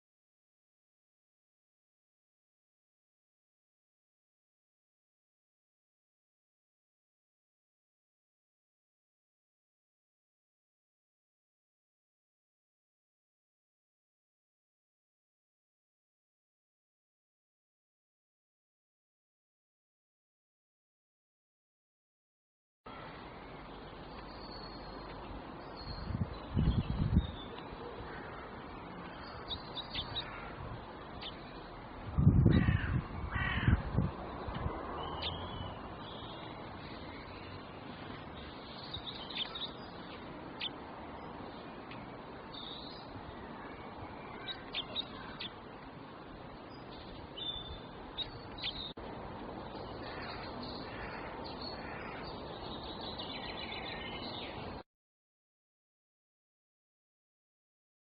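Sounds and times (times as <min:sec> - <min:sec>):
birds chirping: 0:22.9 - 0:54.8.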